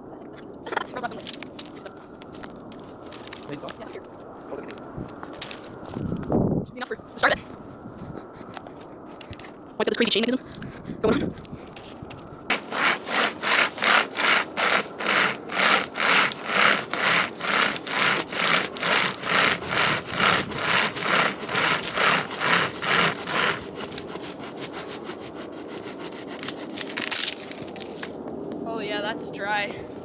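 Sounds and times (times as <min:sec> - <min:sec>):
light quick scraping: 0:11.8 - 0:28.2
hand saw cutting log: 0:12.5 - 0:28.1.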